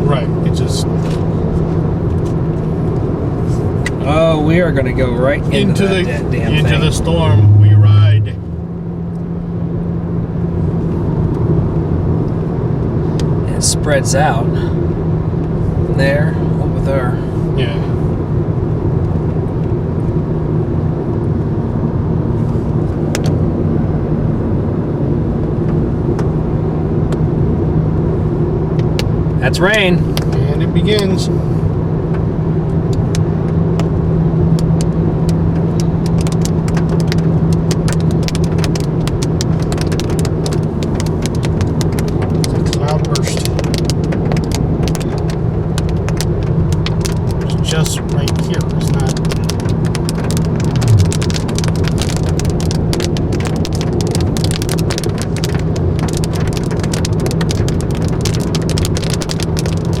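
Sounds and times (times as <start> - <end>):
road and engine hum: 0.0 - 60.0
raindrops tapping on car: 28.8 - 31.2, 32.1 - 60.0.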